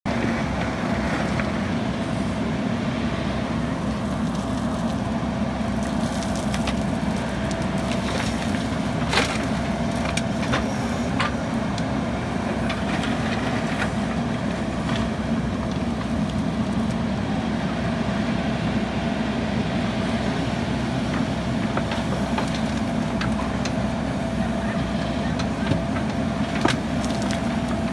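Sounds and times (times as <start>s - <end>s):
diesel engine running: 0.0s - 27.9s
gravel clattering into dump truck: 3.9s - 17.1s, 20.6s - 27.9s.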